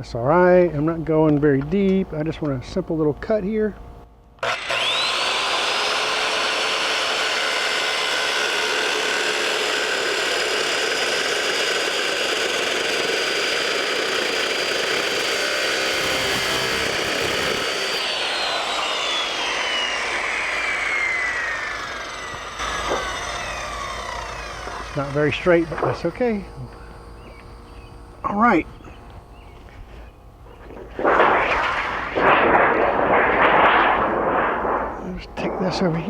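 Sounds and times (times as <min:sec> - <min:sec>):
circular saw cutting metal: 0:04.4 - 0:26.9.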